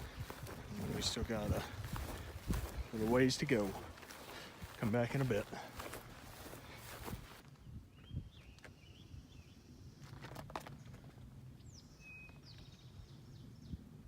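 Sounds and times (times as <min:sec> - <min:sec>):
songbird chirps and whistle: 0:11.6 - 0:13.8.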